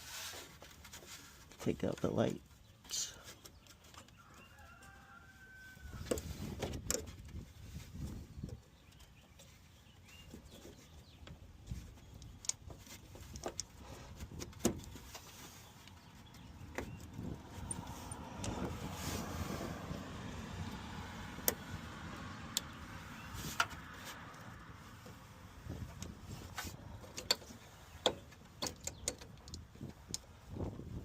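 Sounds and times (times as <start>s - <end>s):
hand tools clicking on metal and plastic: 27.0s - 30.3s.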